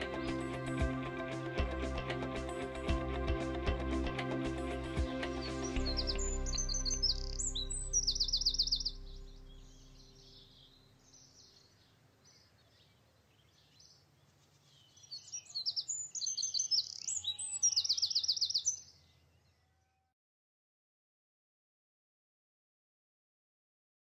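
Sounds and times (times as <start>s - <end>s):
low music tone: 0.0s - 11.0s
songbirds chirping and trilling: 0.0s - 20.1s.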